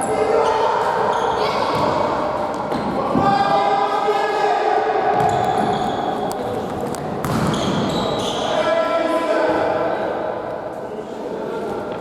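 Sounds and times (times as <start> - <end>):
voices in echoing sports hall: 0.0 - 12.0
ball thudding on court floor: 7.2 - 7.7.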